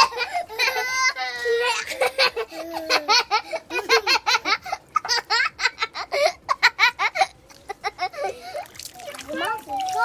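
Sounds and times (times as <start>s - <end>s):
child laughing: 0.0s - 8.6s.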